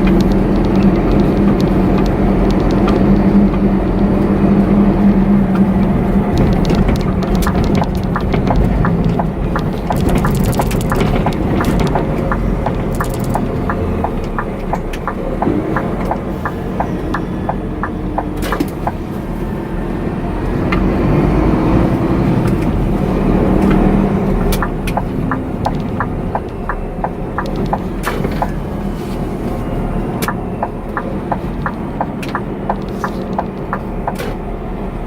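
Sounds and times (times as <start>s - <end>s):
light ticking: 0.0s - 19.0s, 22.4s - 28.9s
road noise: 0.0s - 35.0s
truck diesel engine: 0.0s - 35.0s.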